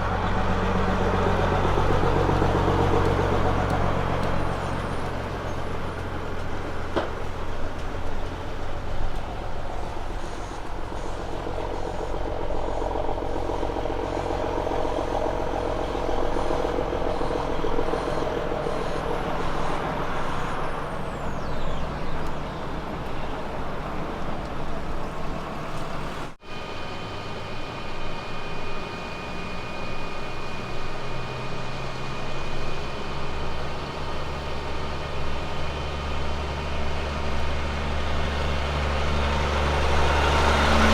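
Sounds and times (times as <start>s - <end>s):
heavy diesel truck engines: 0.0s - 40.9s
steady high tone: 12.1s - 24.8s.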